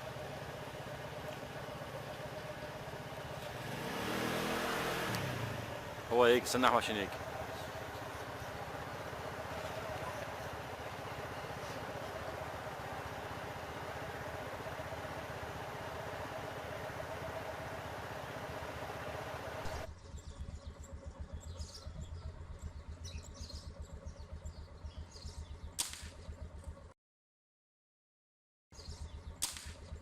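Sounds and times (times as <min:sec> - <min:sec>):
engine idling: 0:00.0 - 0:26.9
road and wind noise: 0:00.0 - 0:26.9
vehicle engine running: 0:00.0 - 0:27.0
small birds chirping: 0:05.2 - 0:17.8, 0:18.6 - 0:26.9, 0:28.7 - 0:30.0
sharp crack: 0:25.8 - 0:26.3, 0:29.4 - 0:30.0.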